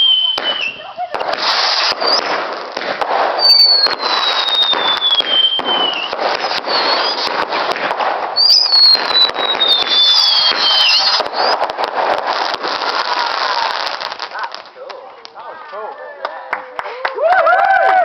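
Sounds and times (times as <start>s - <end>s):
falling firework whistles: 0.0s - 14.2s
fireworks crackling and popping: 0.0s - 17.2s.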